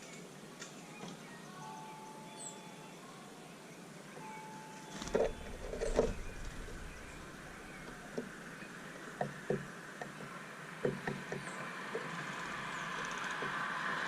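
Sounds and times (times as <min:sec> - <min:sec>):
faint high bird chirps: 0:00.0 - 0:08.8
birds tapping at feeder: 0:04.9 - 0:13.8.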